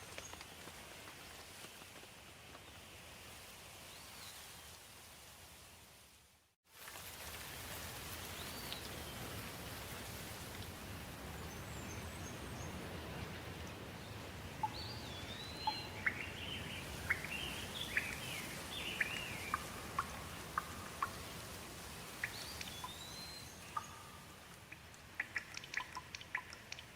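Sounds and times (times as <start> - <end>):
steady rain: 0.0 - 26.9
songbirds chirping: 10.9 - 26.9.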